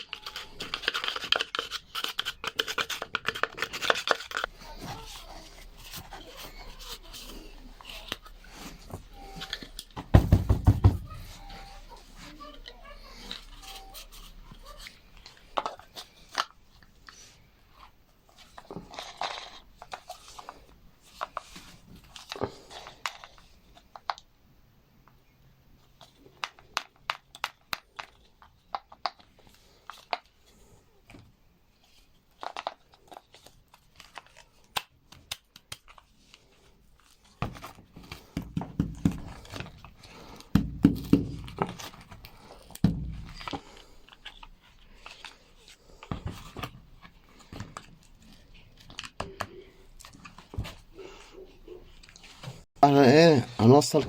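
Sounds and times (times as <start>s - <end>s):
tearing and scraping: 0.0s - 9.8s.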